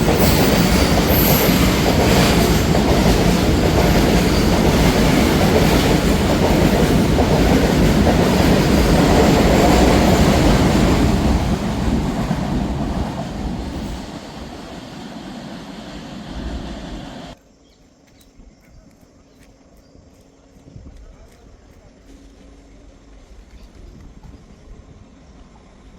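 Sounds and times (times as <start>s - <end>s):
train passing on track: 0.0s - 17.4s, 21.2s - 25.9s.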